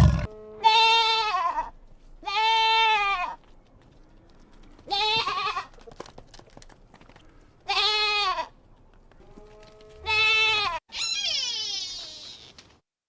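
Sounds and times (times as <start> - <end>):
goat bleating: 0.0 - 3.5, 4.7 - 5.8, 7.6 - 8.6, 9.3 - 12.6.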